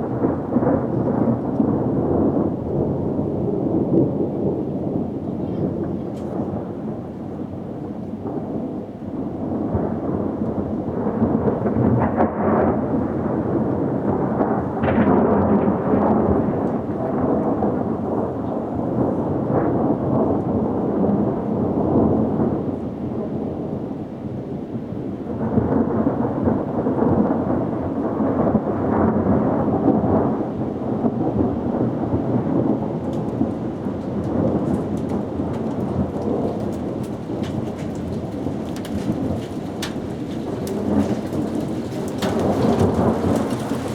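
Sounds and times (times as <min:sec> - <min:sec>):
steady rain: 0:00.0 - 0:43.9
thunder rumbling: 0:00.0 - 0:43.9
drops pattering: 0:32.9 - 0:43.9.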